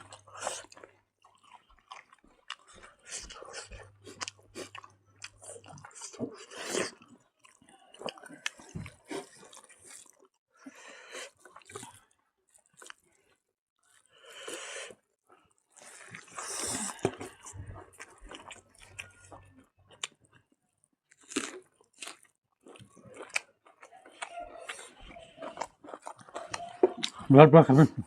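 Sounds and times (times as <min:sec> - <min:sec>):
person chewing food: 0:00.0 - 0:27.3.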